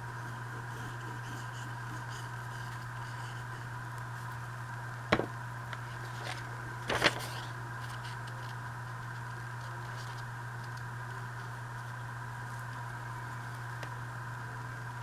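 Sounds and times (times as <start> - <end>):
steady electrical hum: 0.0 - 15.0
tool tapping on table: 5.1 - 5.4
paper rustle and clack: 5.1 - 10.7.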